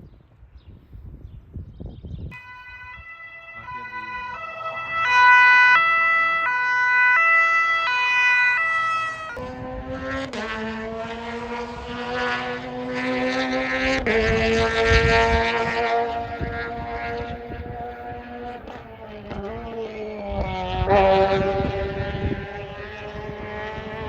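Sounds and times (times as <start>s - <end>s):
two-tone emergency siren: 2.3s - 24.0s
race car engine running hard: 9.1s - 24.0s.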